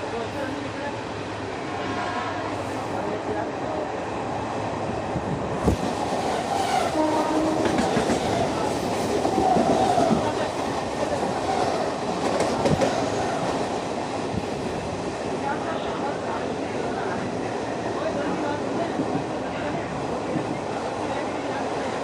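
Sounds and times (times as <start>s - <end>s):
train wheels rumbling and rattling: 4.2s - 15.6s.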